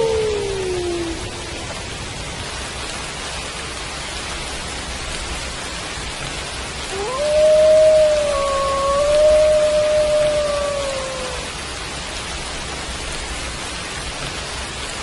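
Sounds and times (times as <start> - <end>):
wolf howling: 0.0 - 1.7, 6.9 - 11.6
steady rain: 0.0 - 15.0.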